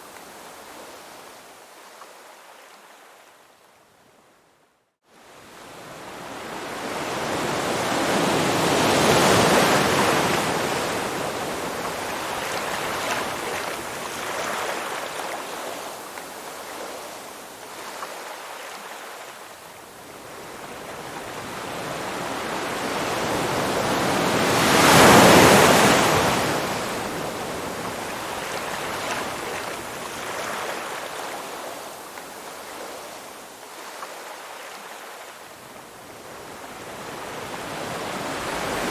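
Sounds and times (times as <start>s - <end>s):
ocean waves washing in: 20.9s - 35.3s.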